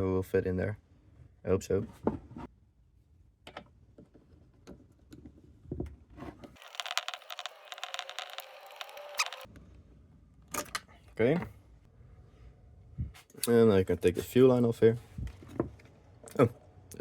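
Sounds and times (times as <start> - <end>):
rapid scraping and clicking: 6.6 - 9.5.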